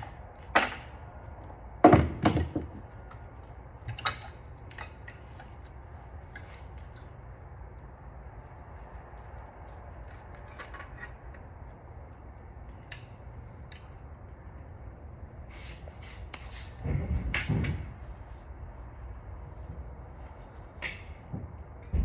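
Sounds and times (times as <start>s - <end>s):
steady low hum: 0.0s - 16.4s
knocks and clatter: 1.8s - 3.2s, 20.8s - 22.0s
brief squeak: 16.4s - 17.2s.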